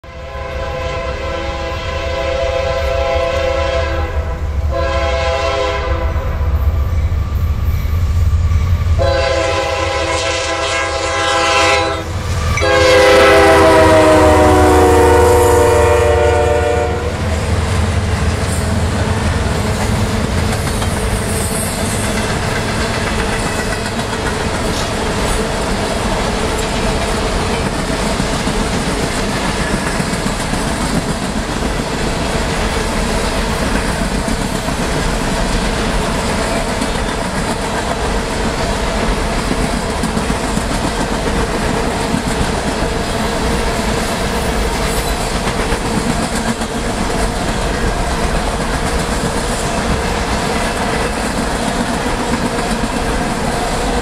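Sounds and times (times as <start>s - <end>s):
train horn blasts: 0.0s - 6.4s, 9.0s - 17.4s.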